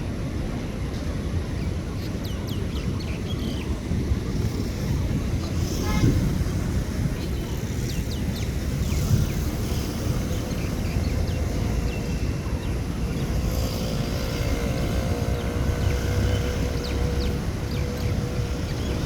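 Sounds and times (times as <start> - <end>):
small birds chirping: 7.2 - 19.0.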